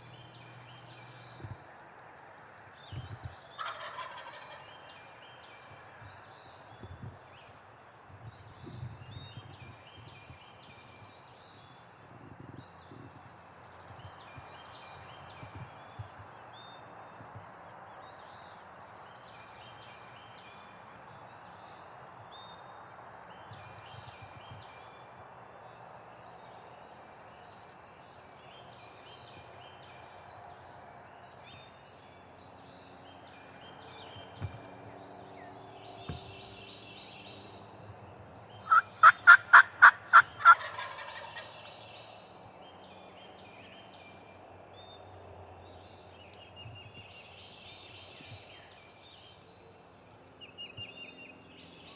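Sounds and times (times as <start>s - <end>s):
songbirds chirping and trilling: 0.0s - 51.9s
distant turkeys gobbling: 3.6s - 4.7s, 38.6s - 41.7s.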